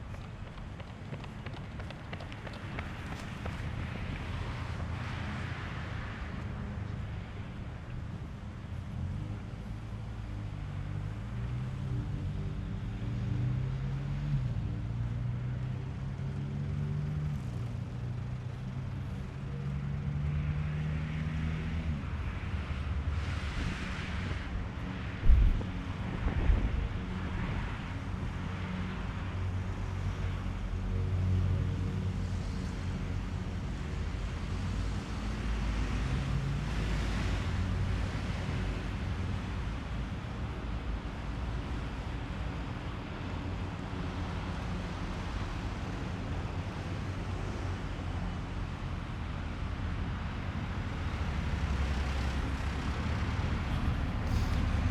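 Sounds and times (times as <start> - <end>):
vehicle engine humming: 0.0 - 4.8, 6.3 - 31.4, 48.9 - 54.9
wind buffeting microphone: 25.2 - 27.8.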